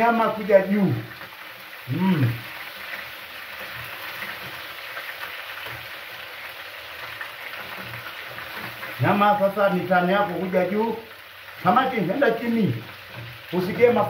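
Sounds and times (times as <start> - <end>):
food sizzling in oil: 0.0 - 14.0
metal spoon turning food: 10.3 - 14.0.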